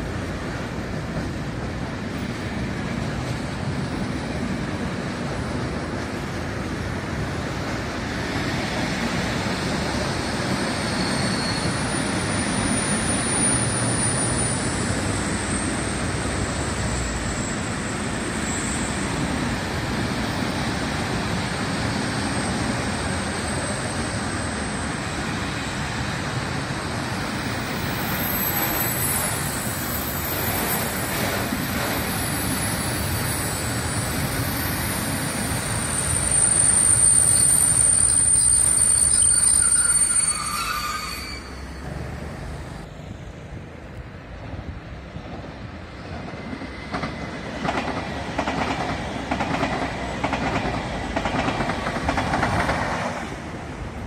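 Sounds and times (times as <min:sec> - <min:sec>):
train wheels rumbling on rail: 0:00.0 - 0:54.0
high wheel squeals: 0:10.0 - 0:19.4, 0:32.0 - 0:42.8.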